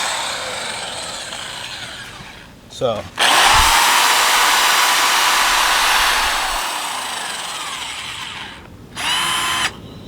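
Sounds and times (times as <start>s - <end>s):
electric drill whine: 0.0s - 2.5s, 3.2s - 9.8s
sanding disc hissing on plastic: 3.2s - 6.7s.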